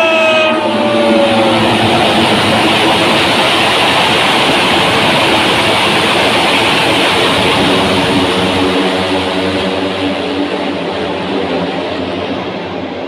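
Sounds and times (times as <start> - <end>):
racing motorcycle engines passing: 0.0 - 5.2.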